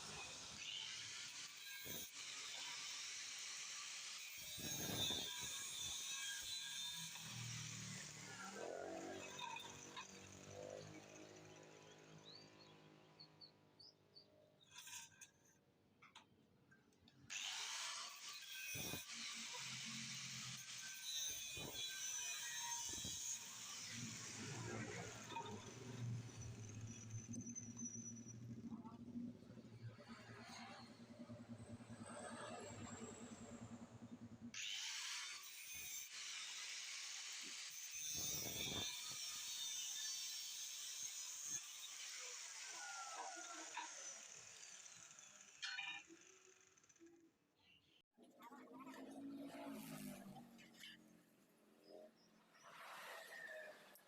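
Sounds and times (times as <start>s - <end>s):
saw rasping on steel: 0.1s - 10.4s, 17.3s - 28.3s.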